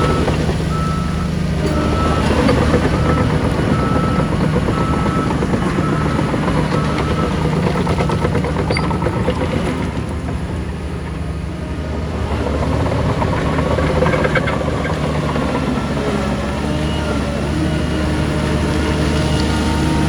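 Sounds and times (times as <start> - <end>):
diesel engine rattling under load: 0.0 - 20.0.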